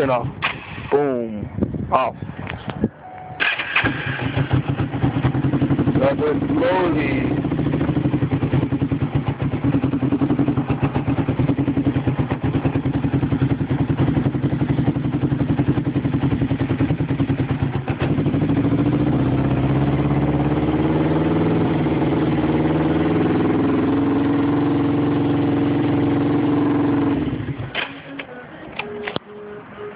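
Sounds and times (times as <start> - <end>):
motorcycle engine idling: 3.4 - 28.2
clicks: 27.8 - 29.3.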